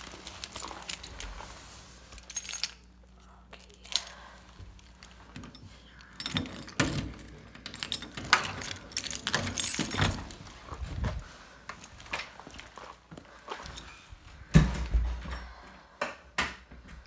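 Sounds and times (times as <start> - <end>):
keys jangling: 0.0 - 1.3, 2.1 - 2.9, 4.8 - 10.6.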